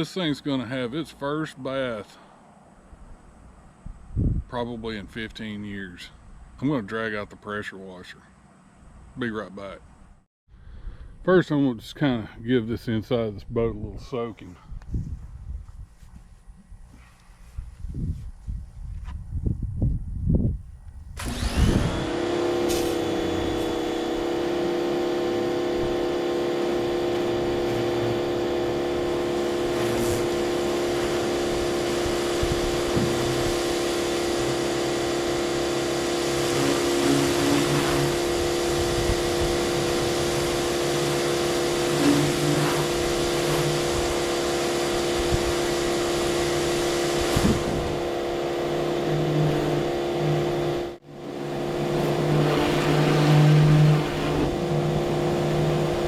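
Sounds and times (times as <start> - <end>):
pressure washer motor drone: 21.2 - 56.0
water spray hissing: 22.4 - 50.6, 51.3 - 56.0.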